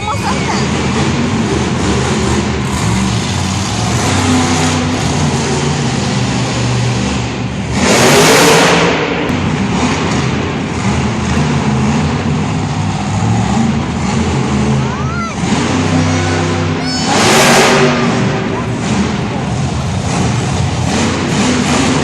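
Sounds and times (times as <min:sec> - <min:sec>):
truck engine revving: 0:00.0 - 0:22.0
loud rushing burst: 0:15.4 - 0:22.0.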